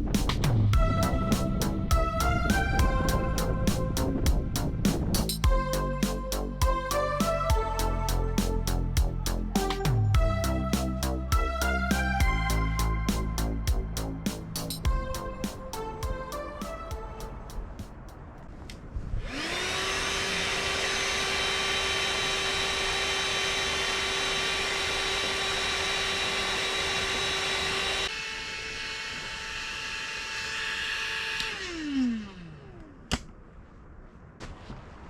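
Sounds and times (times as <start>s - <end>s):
electric motor whining: 19.2s - 32.8s.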